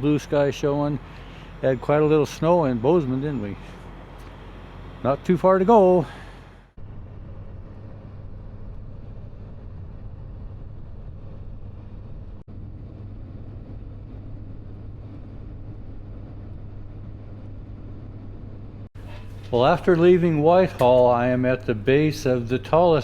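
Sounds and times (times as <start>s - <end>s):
engine and road drone in cab: 0.0s - 12.8s.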